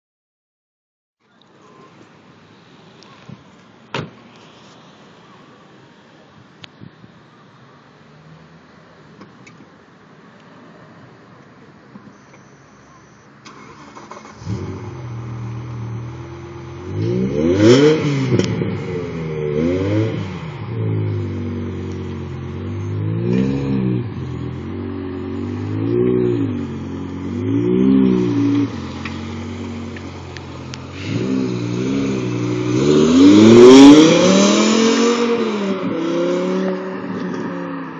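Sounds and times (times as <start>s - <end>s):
car engine idling and revving: 7.9s - 37.9s
car engine starting: 12.1s - 37.9s.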